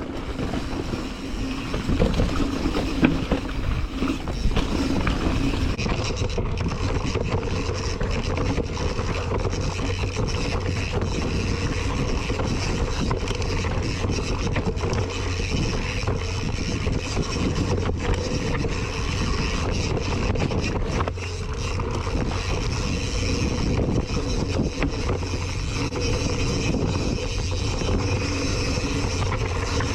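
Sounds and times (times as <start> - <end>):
bike chain and frame rattling: 0.0 - 29.9
tyres rolling over rough ground: 0.0 - 29.9
wind buffeting microphone: 0.0 - 29.9.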